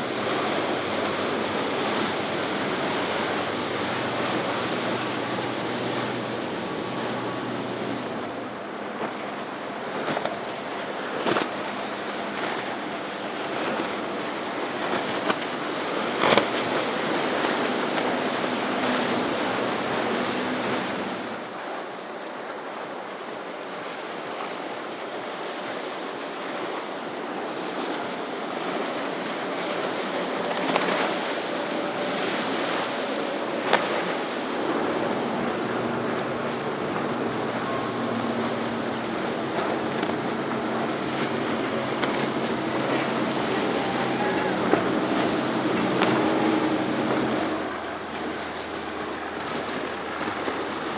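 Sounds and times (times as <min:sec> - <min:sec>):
sharp water splashes: 0:00.0 - 0:21.4, 0:29.0 - 0:50.9
waves washing: 0:00.0 - 0:21.5, 0:26.6 - 0:50.9
faint boat engines humming: 0:00.0 - 0:21.8, 0:25.6 - 0:50.9
wind: 0:00.0 - 0:50.9.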